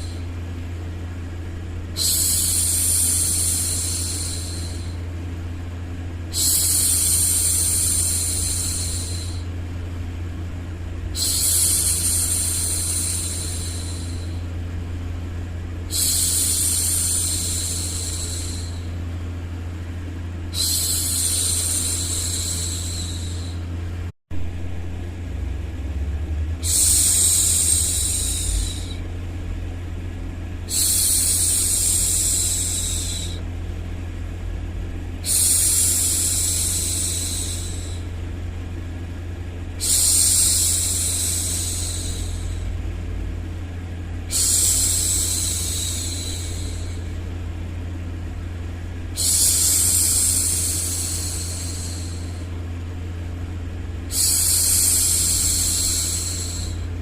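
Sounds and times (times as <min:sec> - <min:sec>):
low hum: 0:00.0 - 0:57.0
woman shushing: 0:02.0 - 0:05.0, 0:11.2 - 0:14.4, 0:20.5 - 0:23.7, 0:26.6 - 0:29.1, 0:30.7 - 0:33.4, 0:35.2 - 0:38.1, 0:39.8 - 0:42.8, 0:44.3 - 0:47.2, 0:49.2 - 0:52.6, 0:54.1 - 0:56.9.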